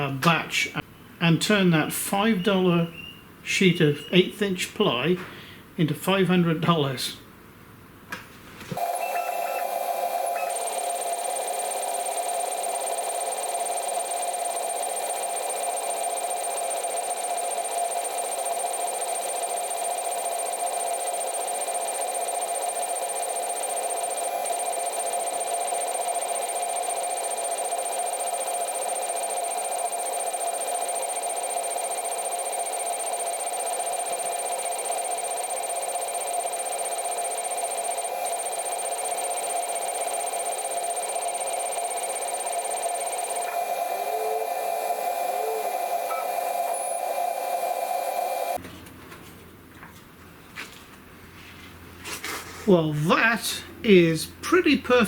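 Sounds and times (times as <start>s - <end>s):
thin high whine: 8.8s - 18.4s, 23.6s - 31.2s, 32.5s - 48.6s
laser engraver machine hum: 8.8s - 48.6s.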